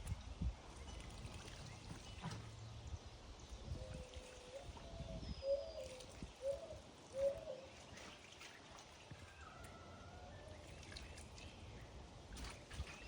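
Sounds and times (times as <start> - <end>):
bird calling: 3.8 - 7.8.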